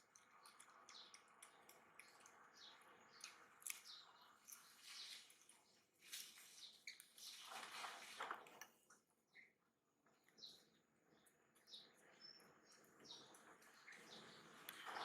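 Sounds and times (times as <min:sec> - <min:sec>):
soft rustling: 0:04.6 - 0:08.7.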